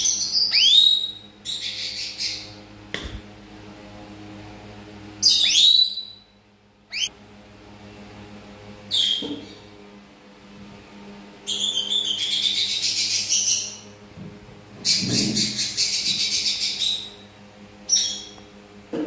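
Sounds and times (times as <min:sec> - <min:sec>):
parrot sharp call: 0:00.3 - 0:02.4, 0:05.2 - 0:06.2.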